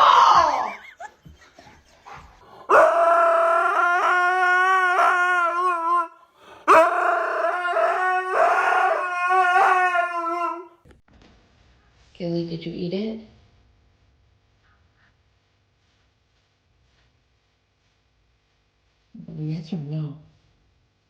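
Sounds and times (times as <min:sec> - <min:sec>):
dog howling: 0:00.0 - 0:01.0, 0:02.4 - 0:10.8.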